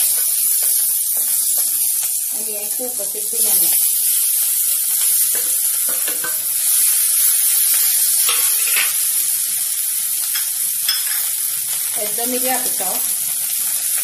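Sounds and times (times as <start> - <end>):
hot oil sizzling: 0.0 - 14.0
spatula scraping and tapping: 5.0 - 6.4.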